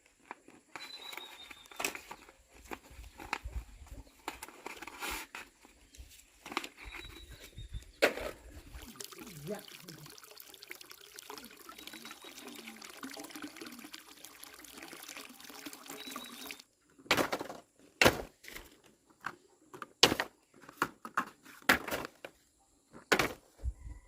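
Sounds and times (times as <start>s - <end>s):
water pouring: 8.2s - 16.7s.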